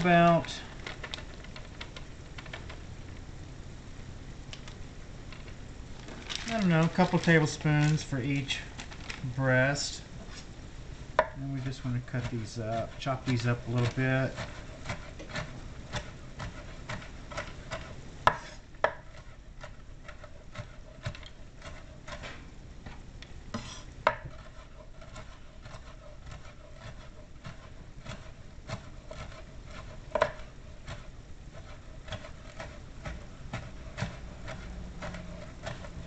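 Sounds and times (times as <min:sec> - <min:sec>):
knife chopping walnuts: 0:11.2 - 0:36.0.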